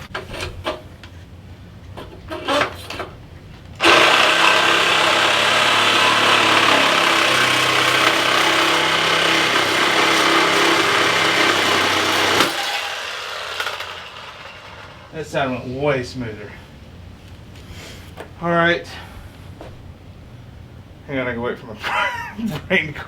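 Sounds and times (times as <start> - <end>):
power tool cutting steel tube: 3.8 - 15.1.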